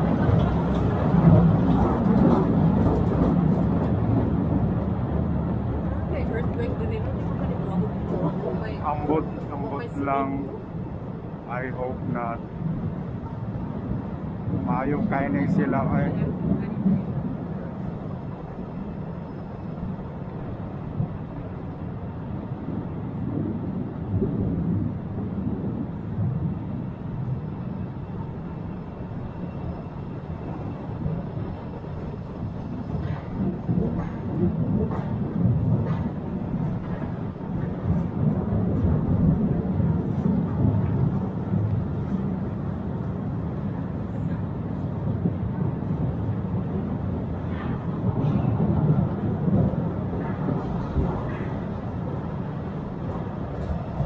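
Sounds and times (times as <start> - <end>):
train wheels running on track: 0.0 - 9.8, 27.9 - 54.0.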